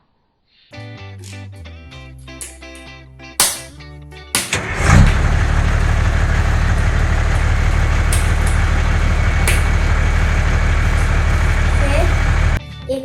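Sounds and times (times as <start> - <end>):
engine low rumble: 4.5 - 12.6.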